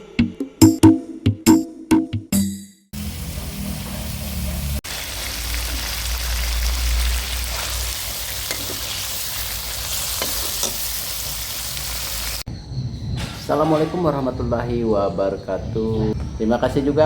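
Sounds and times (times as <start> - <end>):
food sizzling in hot oil: 3.0 - 12.5.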